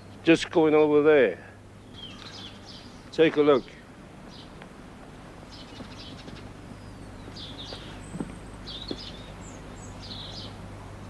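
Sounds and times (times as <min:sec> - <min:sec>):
birds chirping: 0:00.0 - 0:11.0
steady low hum: 0:00.0 - 0:11.0.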